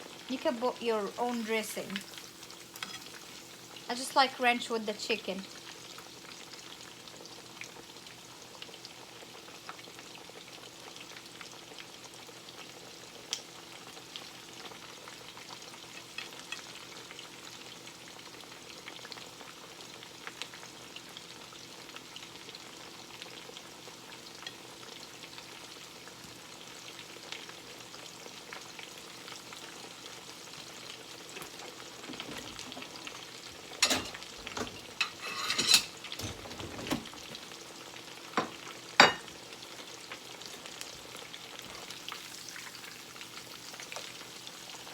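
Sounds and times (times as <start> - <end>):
chicken sizzling in a pan: 0.0 - 36.3, 37.0 - 44.9.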